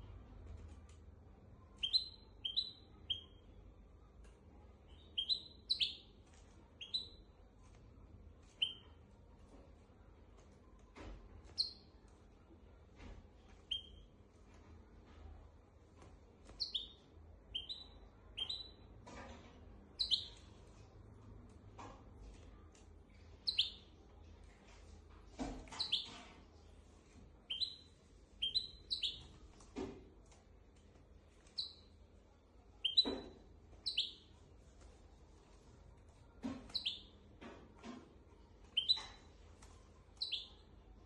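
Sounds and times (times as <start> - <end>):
finch chirping song: 1.7 - 3.5, 4.8 - 7.3, 8.5 - 9.0, 13.7 - 14.1, 16.5 - 18.8, 20.0 - 20.5, 23.4 - 23.9, 25.7 - 26.3, 27.5 - 29.3, 31.5 - 31.9, 32.8 - 34.3, 36.7 - 37.2, 38.7 - 39.2, 40.2 - 40.6.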